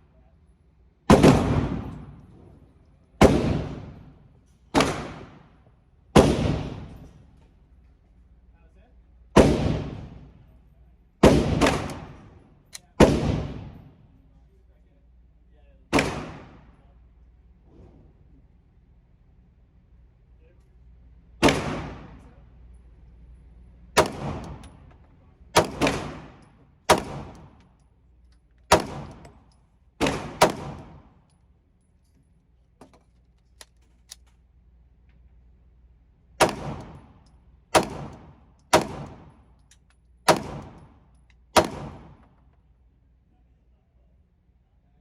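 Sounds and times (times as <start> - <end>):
pistol shots: 1.1 - 2.2, 3.2 - 4.1, 4.7 - 5.5, 6.2 - 7.1, 9.4 - 10.3, 11.2 - 13.9, 15.9 - 16.7, 21.4 - 22.2, 24.0 - 24.8, 25.5 - 27.6, 28.7 - 29.4, 30.0 - 31.2, 36.4 - 39.4, 40.2 - 42.3.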